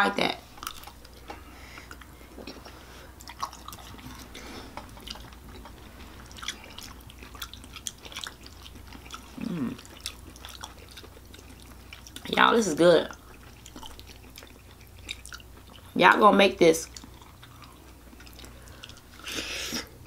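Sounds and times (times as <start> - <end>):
wet chewing and lip smacks: 0.6 - 12.4, 13.1 - 16.0, 16.8 - 19.4
person humming: 9.4 - 9.8.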